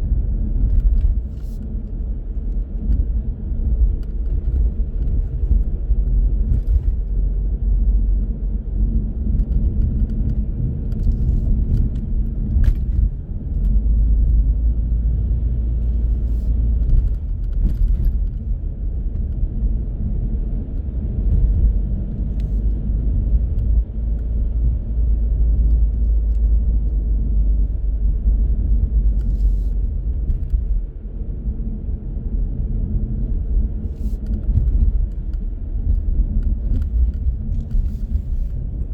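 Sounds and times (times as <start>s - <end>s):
car driving on road: 0.0s - 38.9s.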